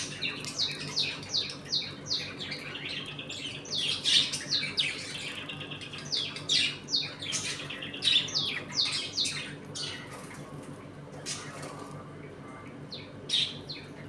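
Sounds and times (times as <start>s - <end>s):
budgerigars chirping: 0.0s - 10.1s
steady low hum: 0.0s - 14.0s.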